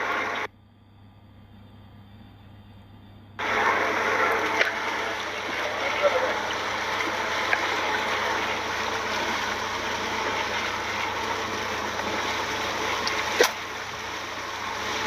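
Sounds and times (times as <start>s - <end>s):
rushing water: 0.0s - 0.5s, 3.4s - 15.0s.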